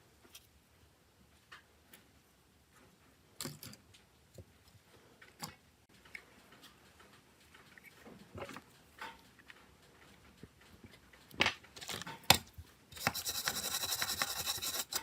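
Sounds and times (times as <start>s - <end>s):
small tools clicking and tapping: 5.2s - 15.0s.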